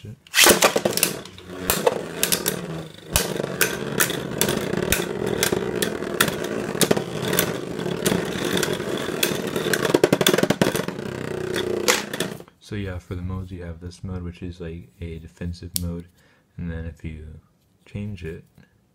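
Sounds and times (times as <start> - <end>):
spinning tops whirring: 0.3 - 12.5
tops clicking and knocking: 0.4 - 12.5.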